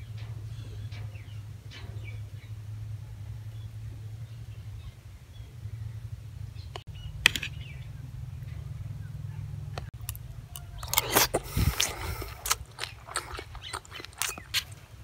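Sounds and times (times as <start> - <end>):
low steady hum: 0.0 - 15.0
wet chewing: 10.0 - 15.0.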